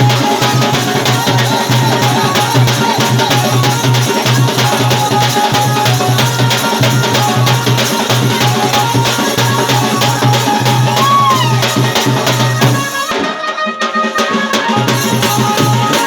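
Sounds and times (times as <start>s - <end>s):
fast dense drumming: 0.0s - 13.2s, 14.4s - 16.0s.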